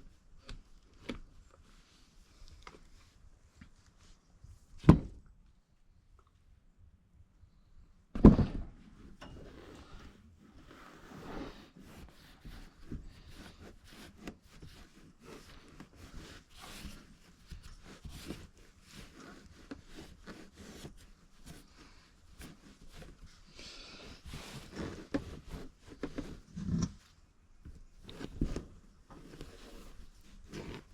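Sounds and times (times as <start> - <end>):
loud thump: 8.2 - 8.8
rubbing scraping and clicking: 9.1 - 30.9.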